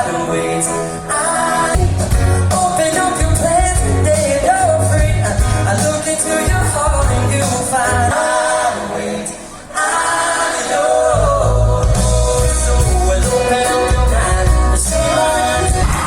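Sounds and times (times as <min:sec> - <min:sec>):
song with singing voices: 0:00.0 - 0:16.0
deep bass: 0:03.2 - 0:05.8, 0:11.2 - 0:16.0.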